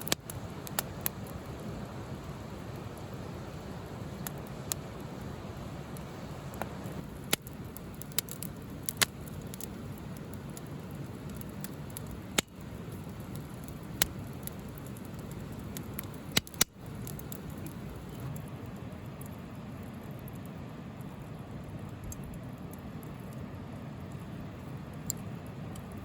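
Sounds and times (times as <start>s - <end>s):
fire pops and crackles: 0.0s - 26.0s
fire rushing: 0.0s - 26.0s.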